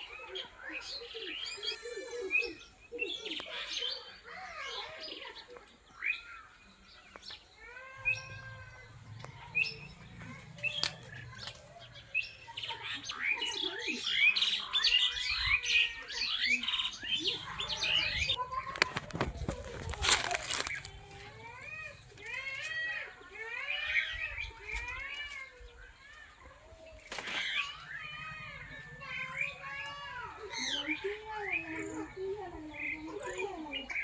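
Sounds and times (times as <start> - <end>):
birds chirping and calling: 0.0 - 34.0.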